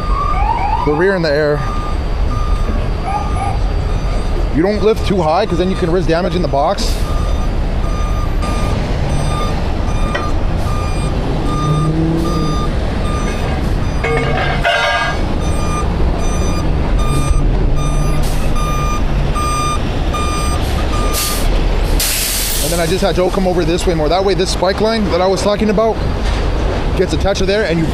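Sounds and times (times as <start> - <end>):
truck reversing alarm beeping: 0.0 - 26.3
diesel engine rumble: 0.0 - 27.9.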